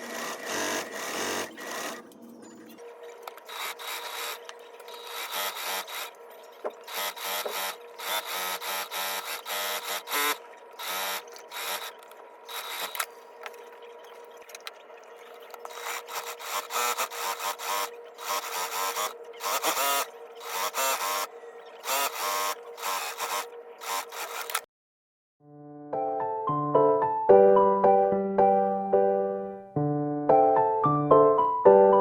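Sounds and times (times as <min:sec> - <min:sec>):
small motor running in bursts: 0:00.0 - 0:02.1, 0:03.4 - 0:06.2, 0:06.8 - 0:13.1, 0:15.6 - 0:24.7.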